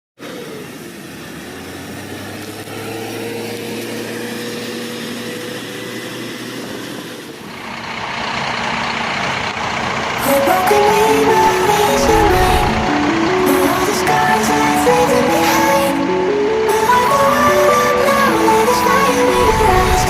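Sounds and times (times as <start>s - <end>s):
diesel coach engine running: 0.2s - 20.0s
background music: 10.2s - 20.0s.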